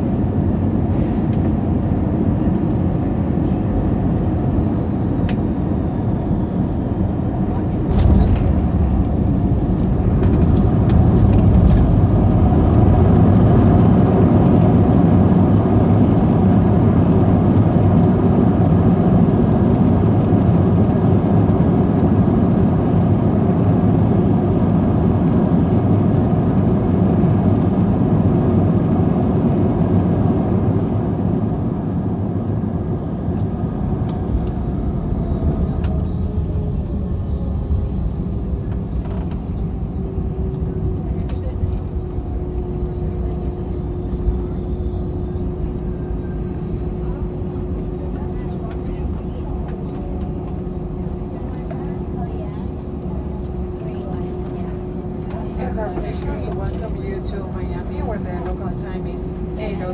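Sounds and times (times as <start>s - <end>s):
jet rumbling on runway: 0.0s - 59.9s
faint falling whine: 7.4s - 14.8s.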